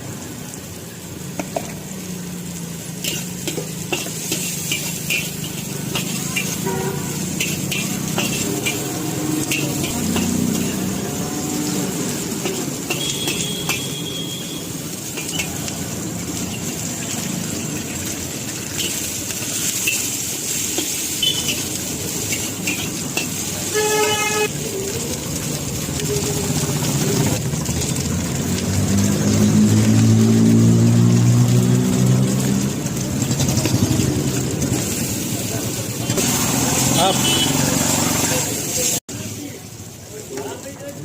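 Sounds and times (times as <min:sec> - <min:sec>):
passing road traffic: 0:00.0 - 0:39.4
noodles sizzling in a wok: 0:00.0 - 0:41.0
scraping and stirring in a wok: 0:01.2 - 0:39.4
vehicle horn toot: 0:06.6 - 0:07.2, 0:12.9 - 0:14.7, 0:21.2 - 0:21.5, 0:23.6 - 0:24.5, 0:36.9 - 0:37.8.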